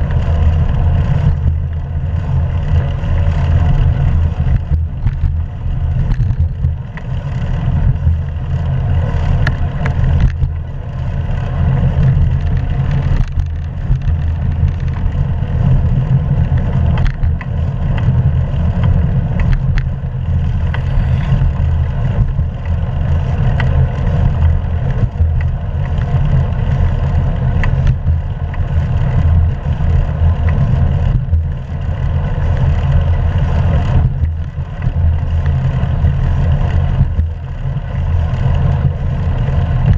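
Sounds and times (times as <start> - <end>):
bicycle clicks and rattles: 0.0 - 39.9
wind buffeting and road rumble: 0.0 - 39.9.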